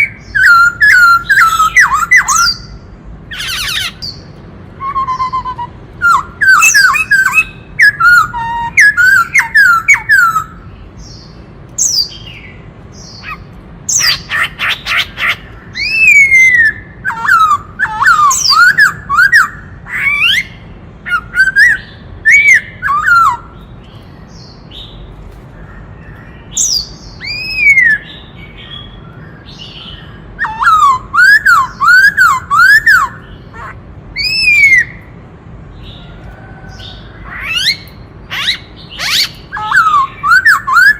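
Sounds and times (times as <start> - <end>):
bird singing whistled phrases: 0.0 - 2.8, 3.4 - 10.6, 13.2 - 23.6, 26.5 - 35.0, 37.4 - 40.9.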